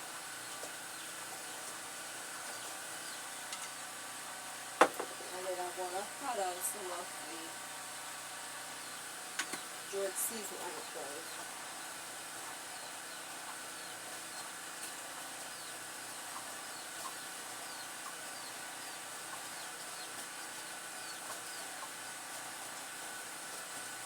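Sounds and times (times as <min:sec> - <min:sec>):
steady background hiss: 0:00.0 - 0:24.0
bird chirping: 0:00.4 - 0:01.7, 0:02.4 - 0:03.7, 0:08.7 - 0:21.9.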